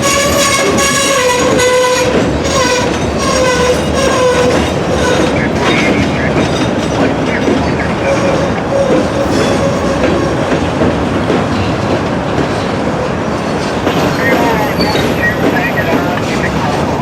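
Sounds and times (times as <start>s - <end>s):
freight train cars rolling: 0.0s - 17.0s
train wheels squealing: 13.6s - 16.4s.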